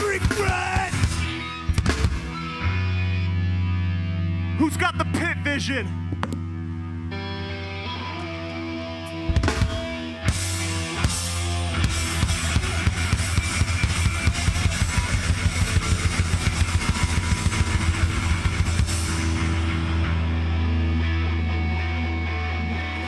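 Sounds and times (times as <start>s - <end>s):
live metal band playing: 0.0s - 23.0s.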